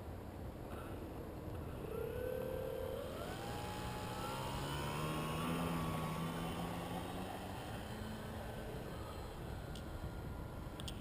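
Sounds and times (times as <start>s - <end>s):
electric model plane motor whine: 1.7s - 11.0s.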